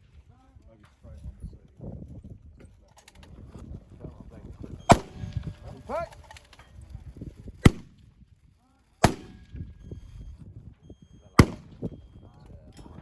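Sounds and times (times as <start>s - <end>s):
rifle shots with ring: 4.9s - 5.6s, 7.6s - 8.0s, 9.0s - 9.8s, 11.4s - 12.0s.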